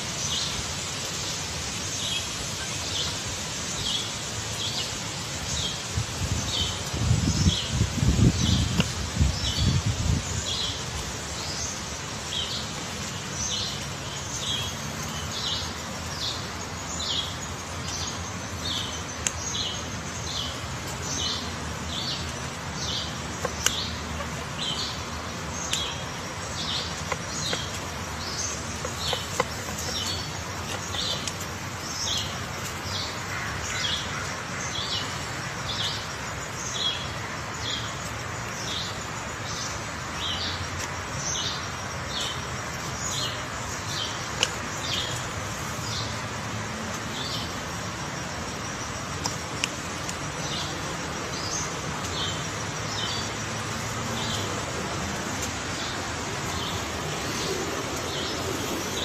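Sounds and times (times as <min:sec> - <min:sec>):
steady background hiss: 0:00.0 - 0:59.0
bird chirping: 0:01.8 - 0:46.2, 0:46.9 - 0:59.0
woodpecker knocking on wood: 0:28.6 - 0:31.3.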